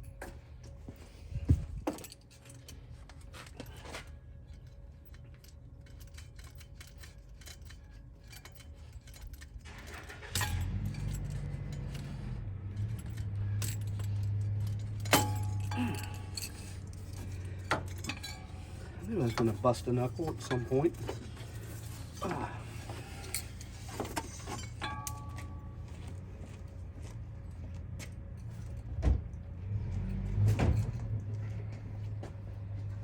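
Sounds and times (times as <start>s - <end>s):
low steady hum: 0.0s - 29.6s
metal wrenches clinking: 1.8s - 25.9s.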